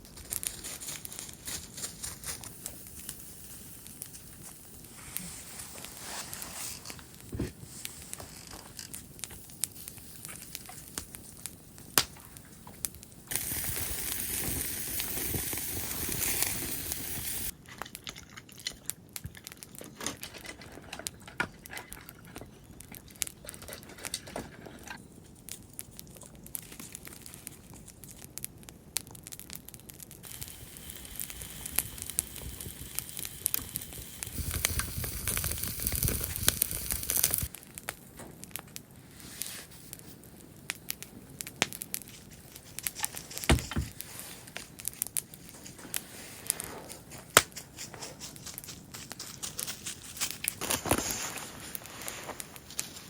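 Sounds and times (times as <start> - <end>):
crinkling and tearing: 0.0 - 3.2, 3.8 - 30.5, 31.2 - 53.0
steady hiss: 0.0 - 17.6, 30.1 - 38.1, 38.8 - 53.0
small clicks and crackles: 0.0 - 53.0.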